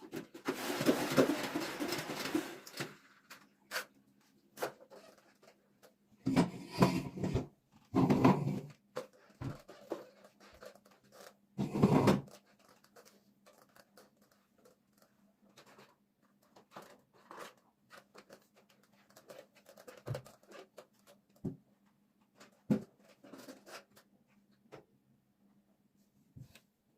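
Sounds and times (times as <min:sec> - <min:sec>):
scratching and clicking: 0:12.2 - 0:21.4.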